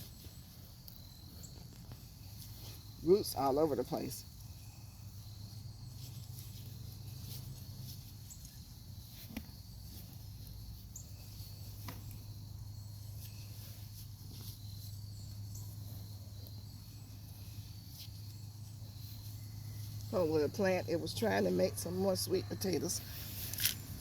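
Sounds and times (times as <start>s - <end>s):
crickets trilling: 0.0s - 24.0s
low steady hum: 0.0s - 24.0s.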